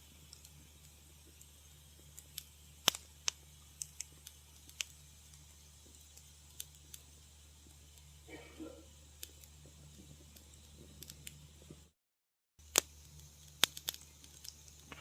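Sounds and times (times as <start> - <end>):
soft low hum: 0.0 - 12.0
wood fire crackling: 0.0 - 12.0, 12.6 - 15.0.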